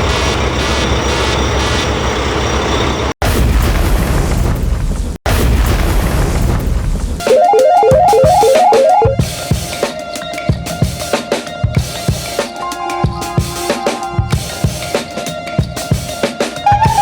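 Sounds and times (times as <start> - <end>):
music jingle: 7.3 - 9.3, 12.6 - 14.8.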